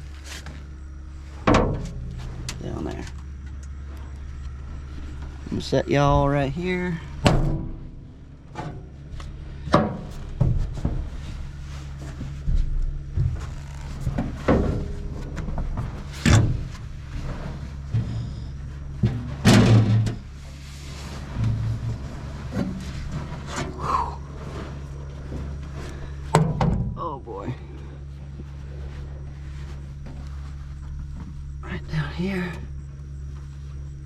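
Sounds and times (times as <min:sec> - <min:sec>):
low engine hum: 0:00.0 - 0:34.0
knocks and bumps: 0:04.7 - 0:31.5.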